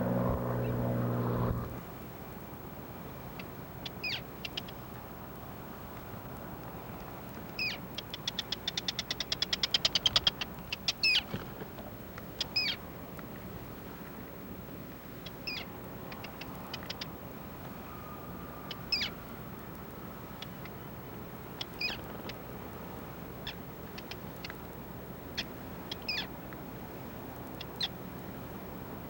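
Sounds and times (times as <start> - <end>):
steady background hiss: 0.0 - 29.0
bird calls: 15.3 - 17.2, 18.5 - 19.3, 21.6 - 22.4, 25.4 - 26.3.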